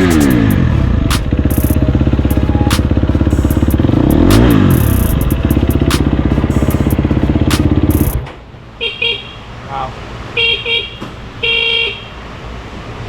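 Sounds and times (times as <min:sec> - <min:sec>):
truck engine idling with choppy lope: 0:00.0 - 0:08.3.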